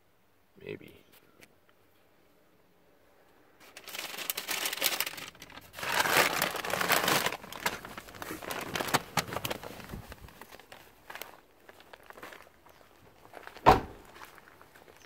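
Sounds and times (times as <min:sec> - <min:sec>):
rustling and crinkling: 0:03.6 - 0:15.0.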